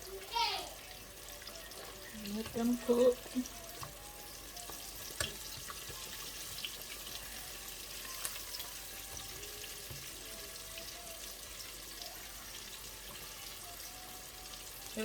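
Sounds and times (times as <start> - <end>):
deep-frying sizzling hiss: 0.0 - 15.0
oil pops and crackles: 4.7 - 6.8.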